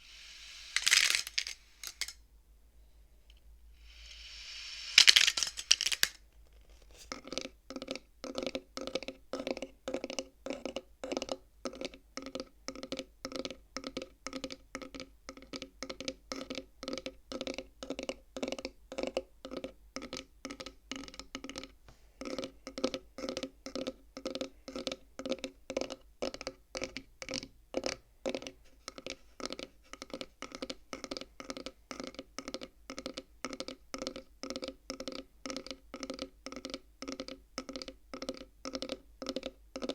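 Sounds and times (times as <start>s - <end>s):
abacus beads clattering: 0.2s - 2.2s, 4.0s - 7.1s.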